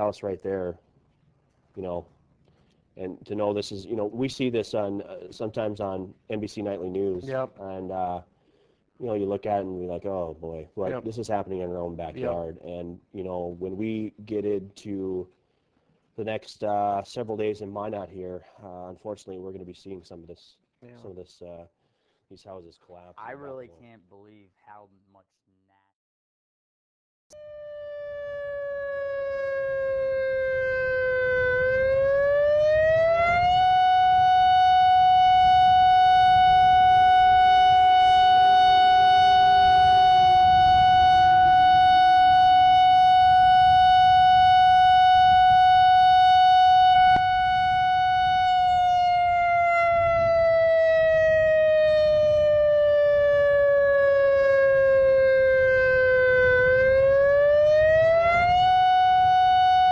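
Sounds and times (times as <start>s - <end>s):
fainter second siren tone: 27.3s - 59.9s
warning siren wailing: 27.3s - 59.9s.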